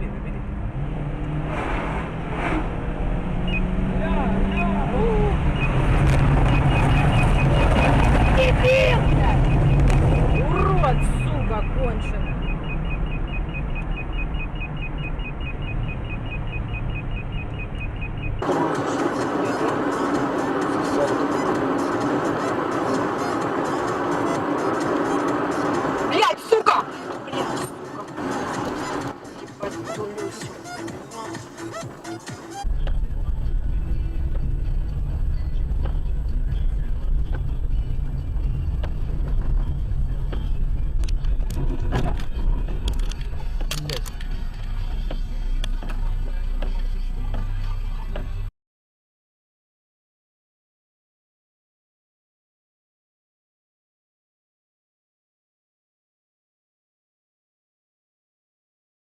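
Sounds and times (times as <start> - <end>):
car engine and road noise: 0.0 - 48.5
sharp clicks: 41.0 - 44.4.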